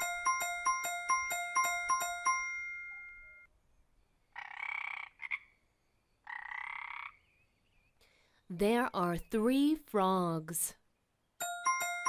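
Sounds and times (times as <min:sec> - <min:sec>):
frog croaking: 0:04.4 - 0:05.5, 0:06.2 - 0:07.2.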